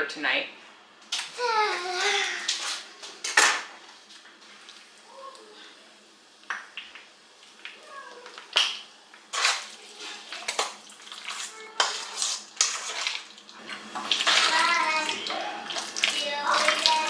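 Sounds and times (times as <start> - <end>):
child's voice: 1.3 - 2.6, 5.0 - 5.8, 7.8 - 8.4, 11.4 - 12.2, 14.2 - 17.0
dishes clinking: 3.2 - 3.8
tap water running: 6.4 - 17.0.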